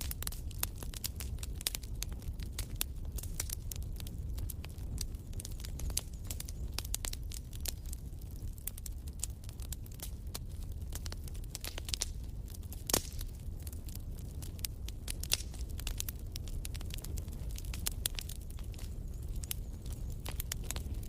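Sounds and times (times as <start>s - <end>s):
fire crackling and popping: 0.0s - 21.0s.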